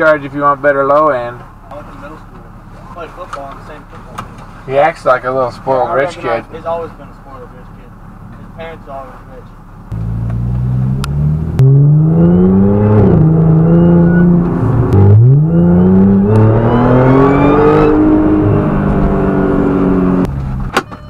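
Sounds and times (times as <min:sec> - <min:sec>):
car engine accelerating hard: 0:09.9 - 0:20.5.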